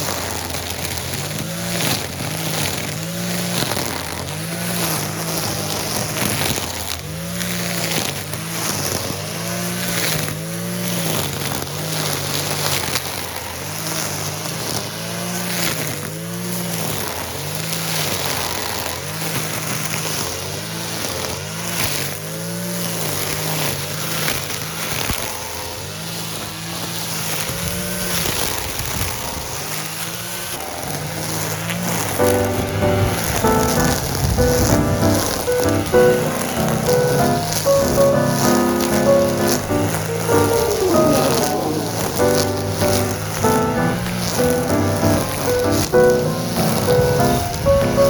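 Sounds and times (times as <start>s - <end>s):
brush cutter engine revving: 0.0s - 16.7s.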